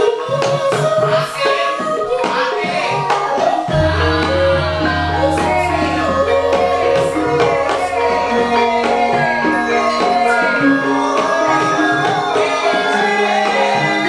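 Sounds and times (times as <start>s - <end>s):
person singing: 0.0s - 14.0s
hand drum strokes: 2.8s - 12.8s
ringing metallophone notes: 2.8s - 14.0s
deep gong stroke: 3.7s - 11.6s.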